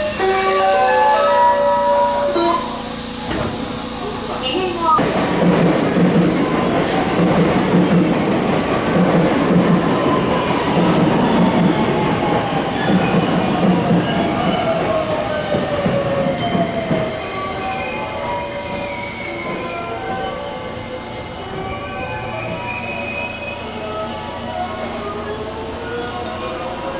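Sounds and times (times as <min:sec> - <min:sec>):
electric train braking: 0:00.0 - 0:05.0.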